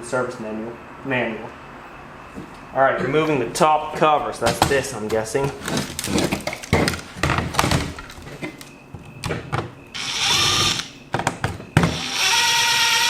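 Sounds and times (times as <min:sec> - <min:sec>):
handling clicks and knocks: 0:04.4 - 0:09.8
electric screwdriver whirring: 0:10.0 - 0:10.9, 0:12.0 - 0:13.0.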